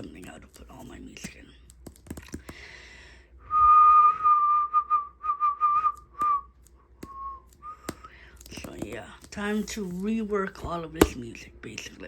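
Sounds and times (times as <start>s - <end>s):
person whistling: 3.4s - 8.0s.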